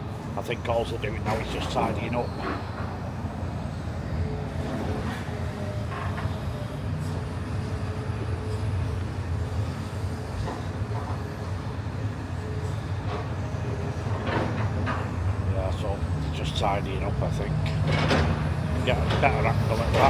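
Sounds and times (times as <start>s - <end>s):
low engine rumble: 15.1s - 20.0s
light clatters: 17.6s - 20.0s.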